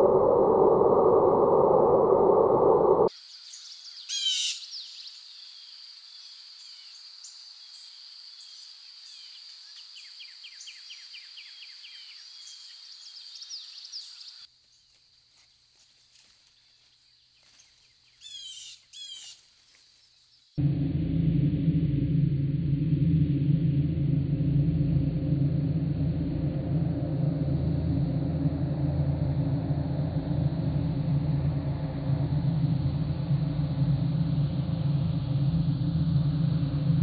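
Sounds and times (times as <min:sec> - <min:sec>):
birds singing: 0:06.6 - 0:14.9.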